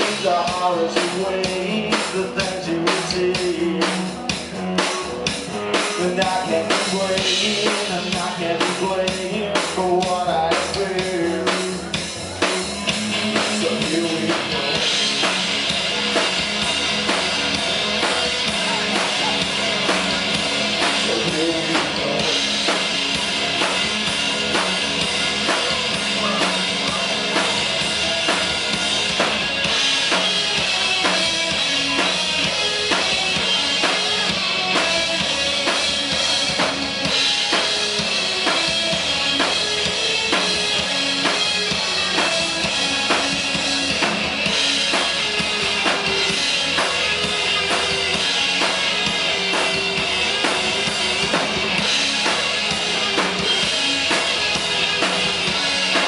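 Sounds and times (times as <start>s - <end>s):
drum kit beat: 0.0s - 56.0s
rock band playing: 0.0s - 56.0s.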